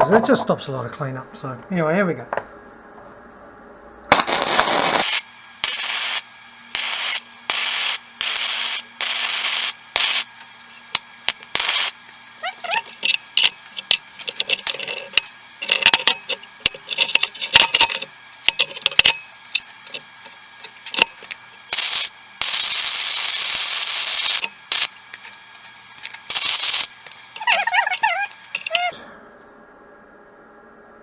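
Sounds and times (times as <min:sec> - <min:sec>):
welding arc crackling: 0:04.1 - 0:29.0.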